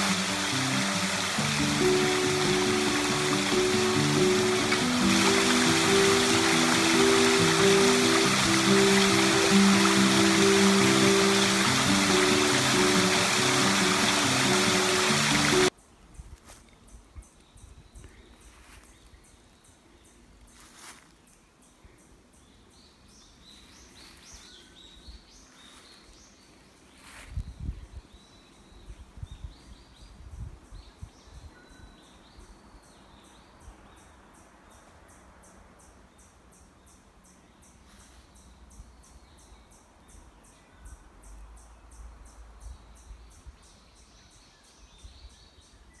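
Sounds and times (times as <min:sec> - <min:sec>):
wild birds chirping: 0:00.0 - 0:15.7.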